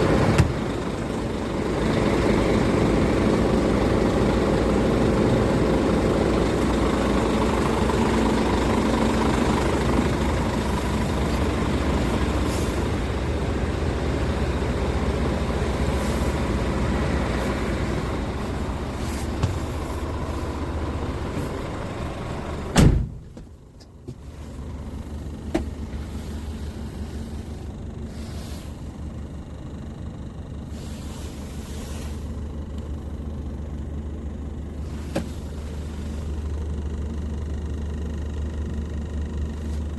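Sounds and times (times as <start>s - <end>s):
diesel truck engine idling: 0.0s - 39.9s
sharp thump: 22.8s - 23.4s.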